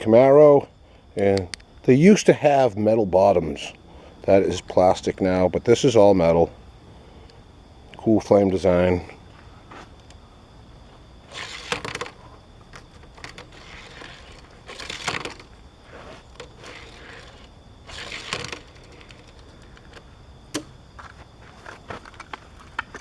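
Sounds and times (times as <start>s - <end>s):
plastic and card crinkling and tearing: 11.3s - 20.0s.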